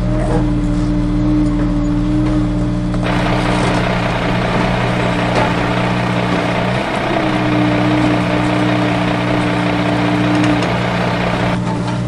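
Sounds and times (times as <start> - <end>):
truck engine idling: 3.0 - 11.6.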